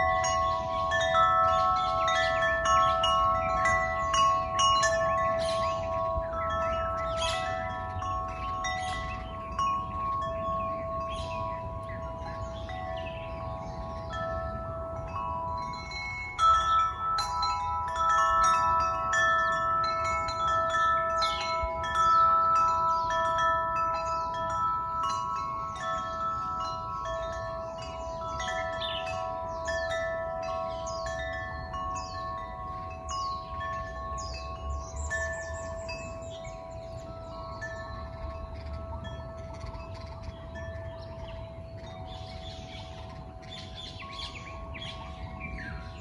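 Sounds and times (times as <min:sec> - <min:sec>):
wind chimes ringing: 0:00.0 - 0:46.0.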